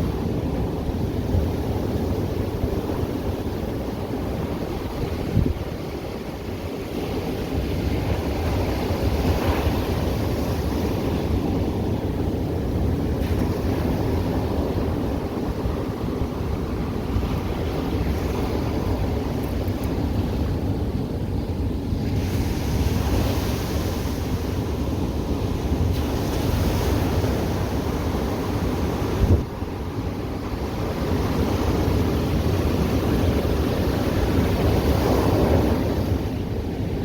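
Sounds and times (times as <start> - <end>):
ocean surf breaking: 21.4 - 37.0.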